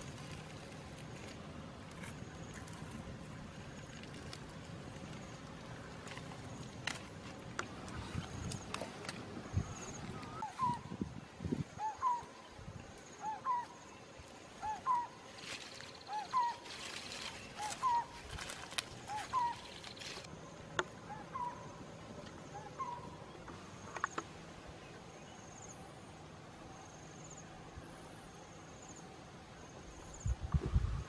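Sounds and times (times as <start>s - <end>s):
crackle and rustle: 0.0s - 10.9s, 11.7s - 20.9s.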